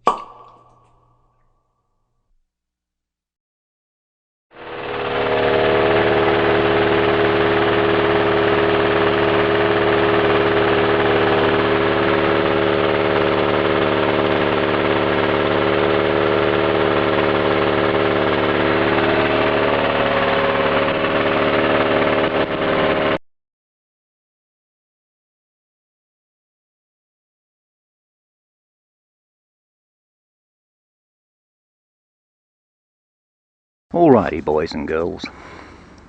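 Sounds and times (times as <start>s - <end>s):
small engine running: 4.5s - 23.2s, 35.3s - 36.0s.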